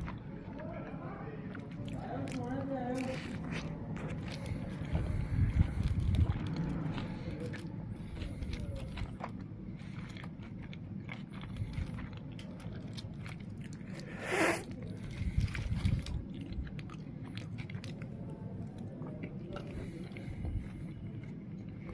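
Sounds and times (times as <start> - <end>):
biting and chewing crunchy food: 0.0 - 21.9.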